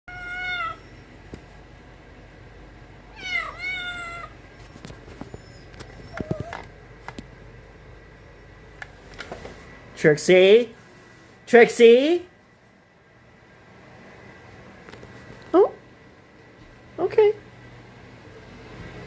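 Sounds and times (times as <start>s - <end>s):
cat meowing: 0.1s - 0.9s, 3.1s - 4.4s.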